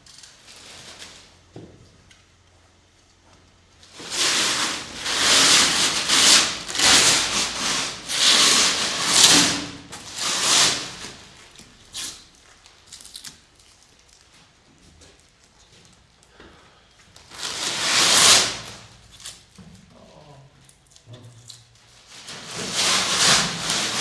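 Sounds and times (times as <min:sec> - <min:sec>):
rough rubbing or scraping: 0:03.9 - 0:12.2, 0:17.3 - 0:18.9, 0:22.1 - 0:24.0.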